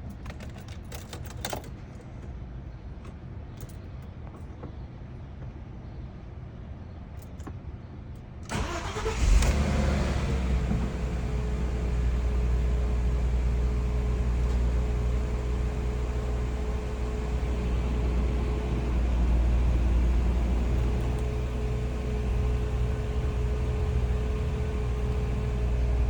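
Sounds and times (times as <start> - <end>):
car engine idling: 8.5 - 26.0.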